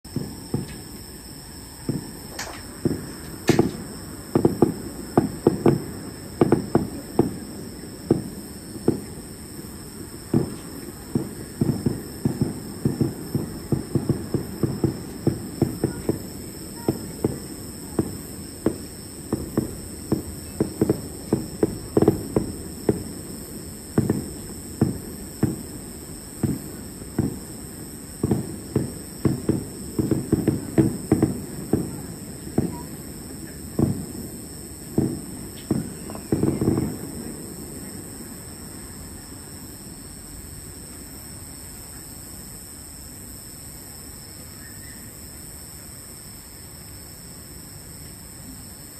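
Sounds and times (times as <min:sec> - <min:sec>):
distant firework shells bursting: 0:00.1 - 0:38.0.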